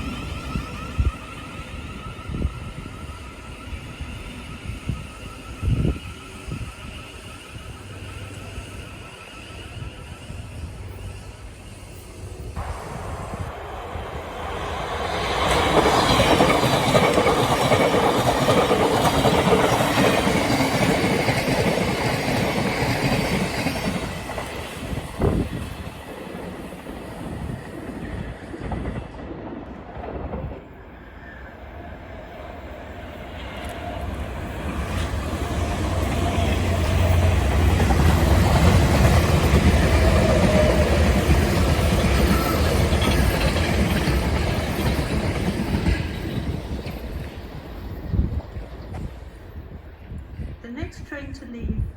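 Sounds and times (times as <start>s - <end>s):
deep train hum: 0.0s - 51.9s
train wheels clattering: 13.8s - 30.6s, 34.6s - 49.3s.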